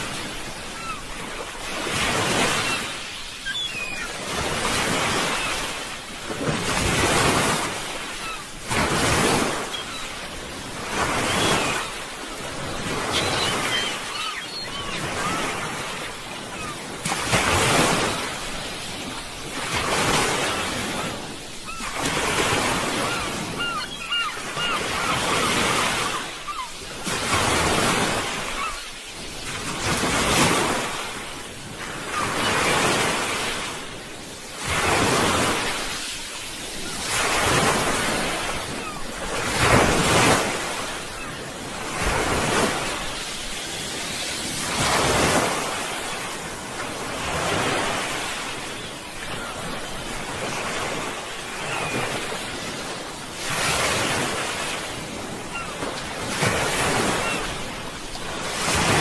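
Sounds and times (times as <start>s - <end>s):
sea waves breaking on shore: 0.0s - 59.0s.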